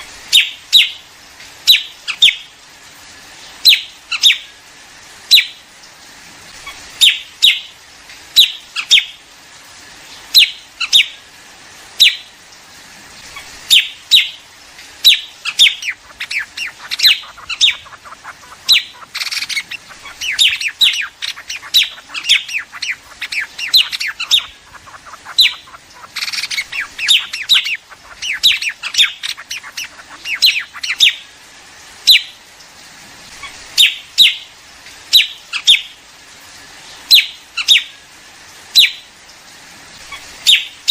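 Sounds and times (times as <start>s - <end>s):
birds chirping: 0.0s - 2.6s, 3.6s - 4.6s, 6.5s - 9.2s, 10.1s - 11.3s, 13.1s - 32.4s, 40.0s - 40.9s.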